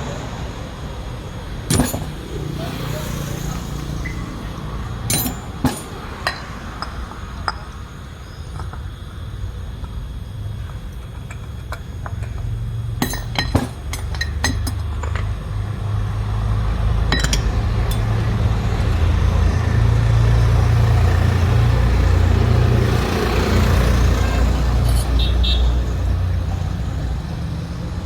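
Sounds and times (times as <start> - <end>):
vehicle engine rumbling: 0.0 - 28.0
sharp metallic clinks: 1.7 - 9.0, 13.0 - 15.3, 17.1 - 18.3, 23.7 - 26.1.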